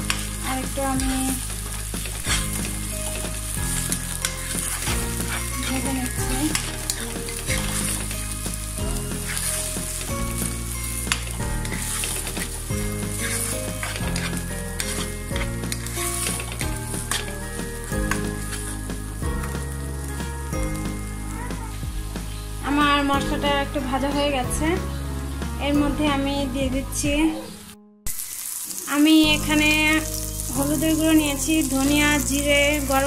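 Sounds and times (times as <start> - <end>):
spatula stirring and scraping: 0.0 - 20.3
onions sizzling in oil: 0.0 - 33.0.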